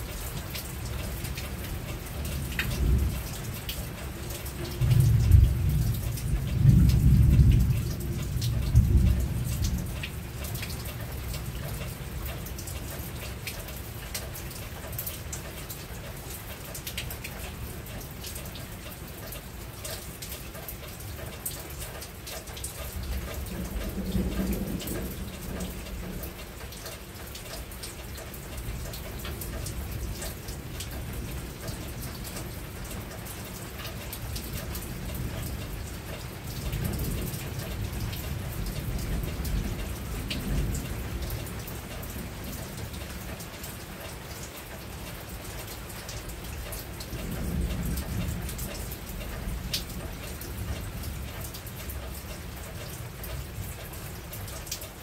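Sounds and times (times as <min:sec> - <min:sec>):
rain falling on a roof: 0:00.0 - 0:55.0
low thunder rumble: 0:02.3 - 0:10.4, 0:23.0 - 0:26.4, 0:34.5 - 0:42.5, 0:47.1 - 0:51.4.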